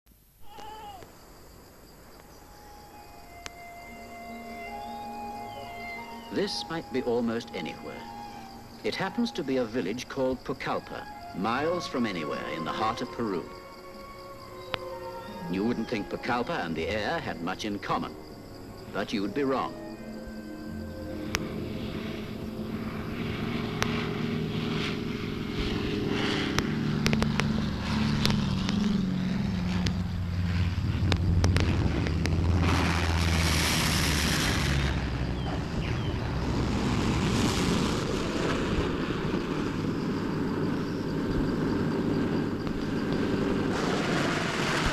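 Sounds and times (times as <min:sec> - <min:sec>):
propeller aircraft engine running: 0:20.7 - 0:44.9
loud rushing noise: 0:21.4 - 0:44.9.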